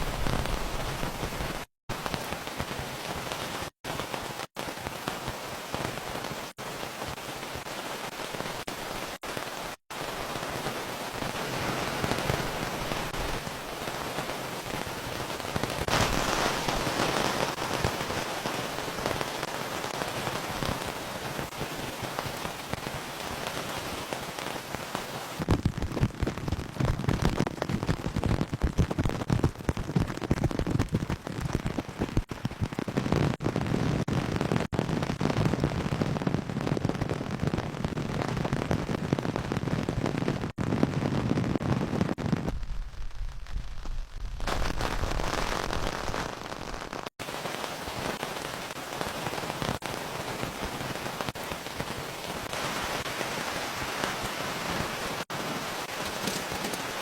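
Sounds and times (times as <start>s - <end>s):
rain hiss: 0.0s - 27.5s, 42.0s - 57.0s
low pattering of raindrops: 0.0s - 57.0s.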